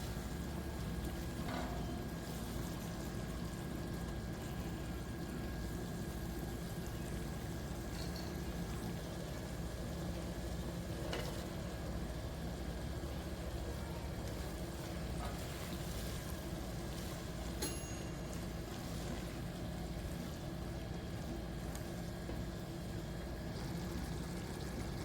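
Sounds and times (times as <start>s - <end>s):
stovetop cooking hum and hiss: 0.0s - 25.0s
light ringing clink: 17.6s - 18.5s.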